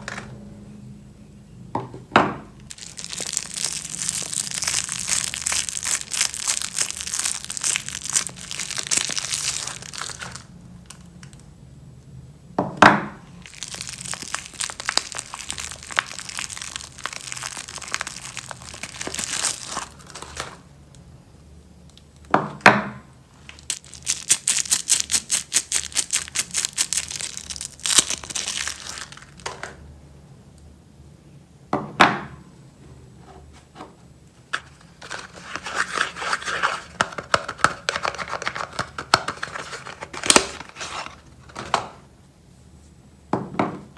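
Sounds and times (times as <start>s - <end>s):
wrappers crinkling and tearing: 2.7s - 11.4s, 13.4s - 20.7s, 23.4s - 29.7s, 34.6s - 41.6s.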